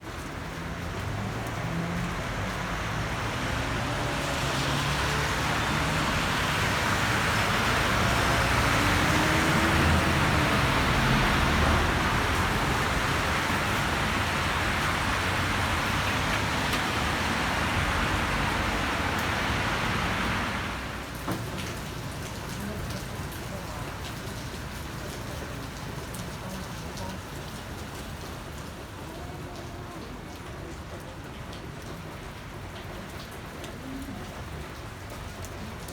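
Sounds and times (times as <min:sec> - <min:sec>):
passing vehicle engine hum: 0:00.1 - 0:26.8
tyre hiss on wet road: 0:01.0 - 0:22.8.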